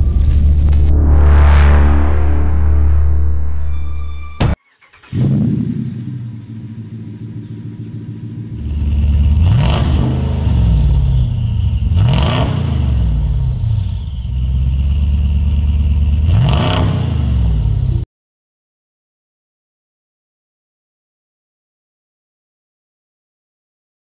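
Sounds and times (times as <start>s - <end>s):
car engine starting and idling: 0.0s - 16.7s
car engine revving: 0.0s - 18.0s.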